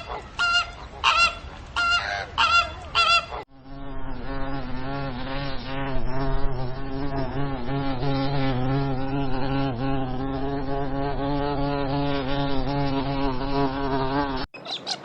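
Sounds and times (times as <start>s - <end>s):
flying insect buzzing: 3.5s - 14.5s.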